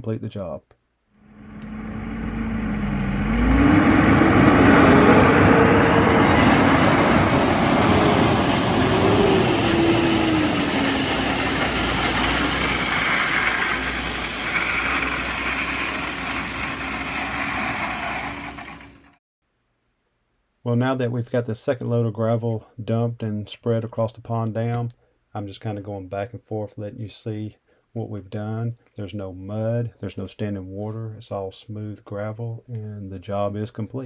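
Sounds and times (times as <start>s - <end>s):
dump truck engine revving: 1.2s - 19.2s.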